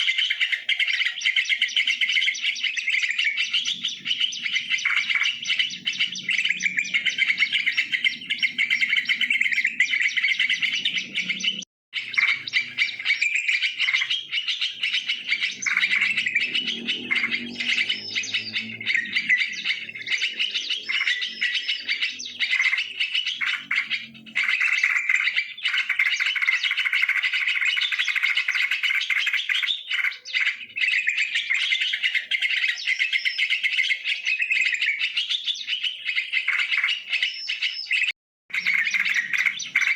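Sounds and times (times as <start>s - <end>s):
bulbuls chirping: 0.0s - 39.9s.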